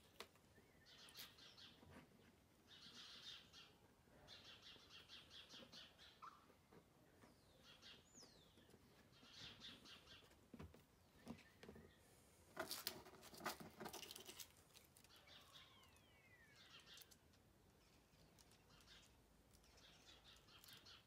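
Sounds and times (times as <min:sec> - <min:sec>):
faint bird calls: 0:15.0 - 0:17.2.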